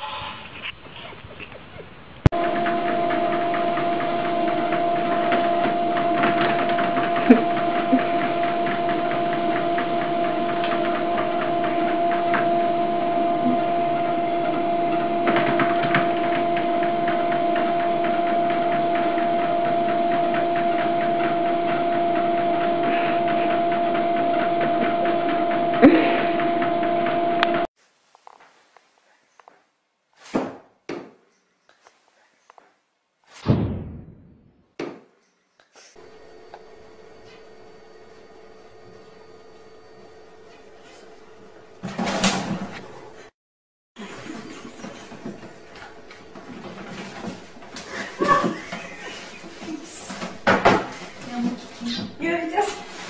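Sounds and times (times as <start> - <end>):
small motor humming with rattle: 2.4 - 27.7.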